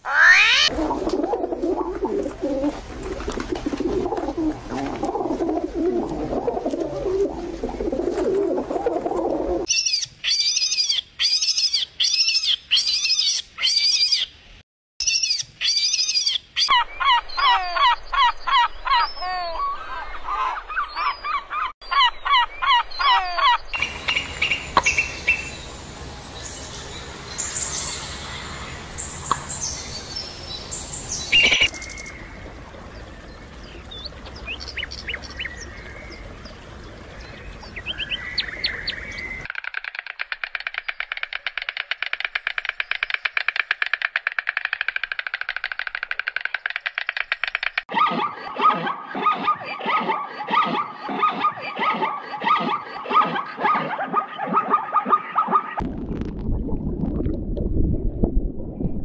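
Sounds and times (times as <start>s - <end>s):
pitched animal chirping calls: 0.0s - 0.7s, 9.7s - 14.3s, 15.0s - 19.8s
outdoor background noise: 0.0s - 59.0s
high bird-like chirps: 9.7s - 14.3s, 15.0s - 17.1s, 26.4s - 32.4s
fast rattle of clicks: 39.5s - 47.9s.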